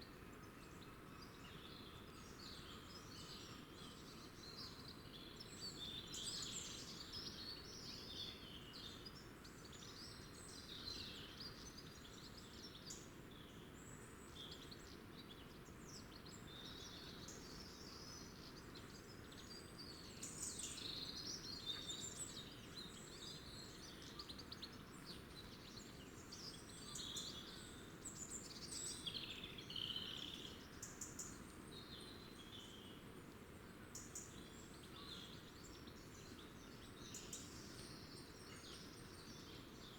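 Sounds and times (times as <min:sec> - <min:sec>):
faint low background noise: 0:00.0 - 0:39.9.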